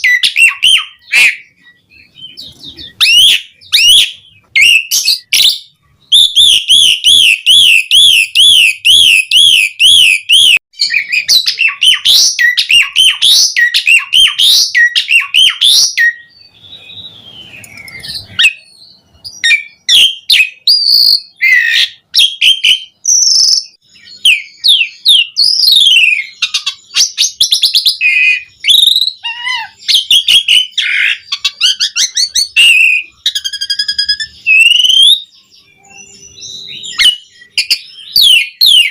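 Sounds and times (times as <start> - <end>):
starling singing: 0.0 - 38.9.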